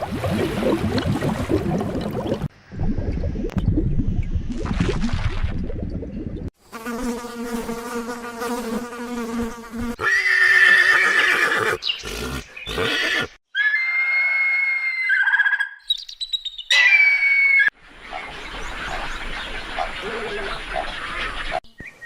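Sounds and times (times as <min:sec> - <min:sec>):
long high-pitched animal call: 0:12.7 - 0:15.8.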